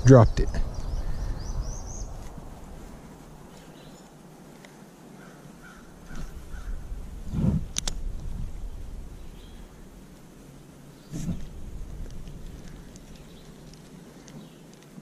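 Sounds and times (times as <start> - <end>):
birds chirping: 0.0 - 7.4, 8.5 - 15.0
sharp clicks: 7.7 - 8.0.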